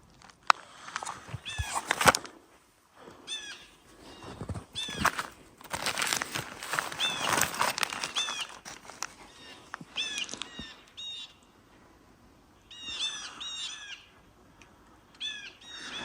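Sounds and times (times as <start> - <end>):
small birds calling: 3.2 - 11.7, 12.6 - 14.3, 15.1 - 16.0.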